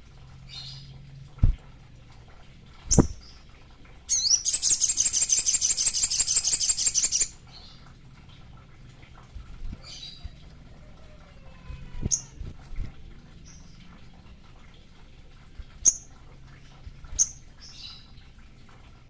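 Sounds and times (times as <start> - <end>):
bird singing high trill: 4.1 - 7.4.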